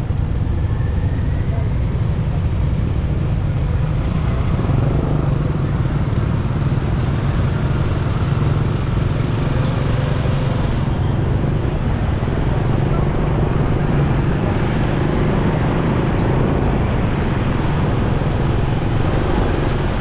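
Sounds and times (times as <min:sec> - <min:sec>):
surrounding vehicles: 0:00.0 - 0:20.0
motorcycle engine: 0:02.0 - 0:20.0
wind rumble on microphone: 0:10.5 - 0:20.0.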